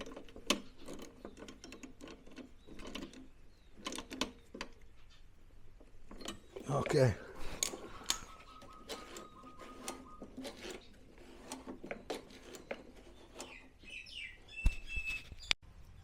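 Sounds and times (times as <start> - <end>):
handling clicks and taps: 5.8 - 13.6
short bird chirps: 13.8 - 15.5.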